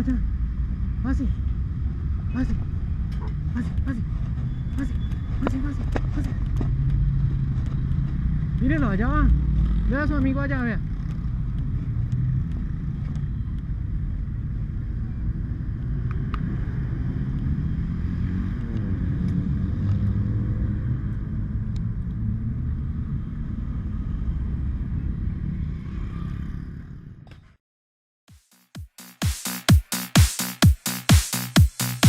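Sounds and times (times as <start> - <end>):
motorcycle engine rumbling: 0.0 - 19.3.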